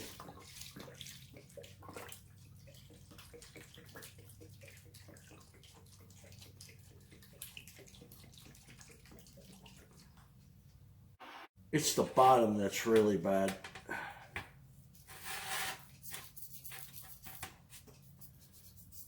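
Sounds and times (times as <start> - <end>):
liquid splashing and dripping: 0.0 - 10.8.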